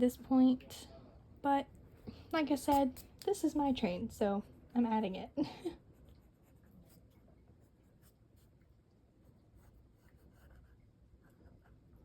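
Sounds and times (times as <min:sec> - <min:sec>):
pencil scratching on paper: 0:05.9 - 0:08.6, 0:09.3 - 0:12.0.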